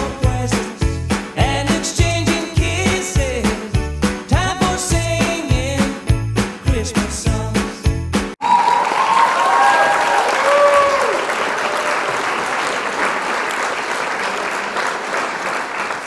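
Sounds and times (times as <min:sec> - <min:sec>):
cheering voices and whoops: 0:08.4 - 0:12.6
crowd applauding: 0:08.4 - 0:16.0.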